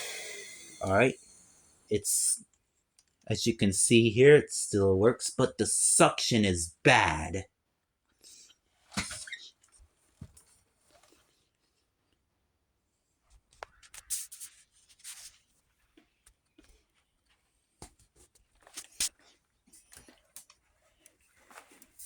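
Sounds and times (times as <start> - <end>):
plastic object being handled: 8.8 - 11.8, 13.3 - 22.0.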